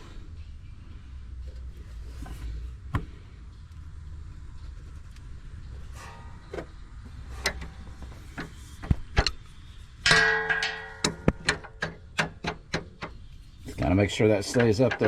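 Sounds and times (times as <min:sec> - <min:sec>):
ringing metallic clank: 0:10.0 - 0:12.0
metal tools clicking and knocking: 0:10.0 - 0:13.2, 0:14.2 - 0:15.0.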